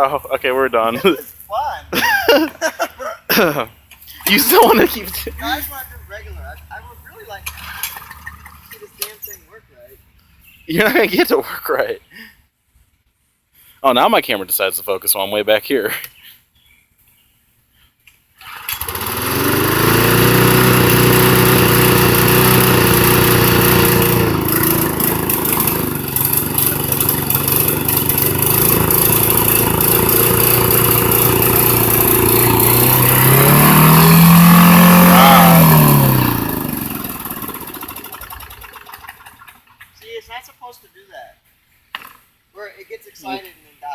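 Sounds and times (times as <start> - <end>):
lawn mower engine running: 3.9 - 9.1, 18.4 - 39.9.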